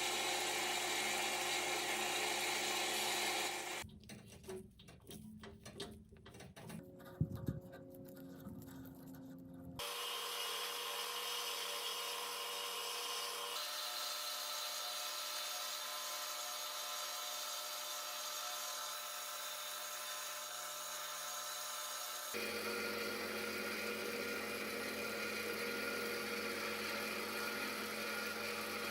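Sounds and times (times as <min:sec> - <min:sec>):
power tool running: 0:00.0 - 0:03.8, 0:09.8 - 0:28.9.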